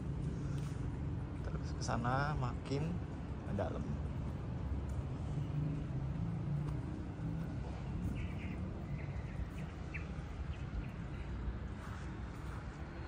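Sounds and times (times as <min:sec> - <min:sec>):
faint bird chirps: 0:08.0 - 0:11.5.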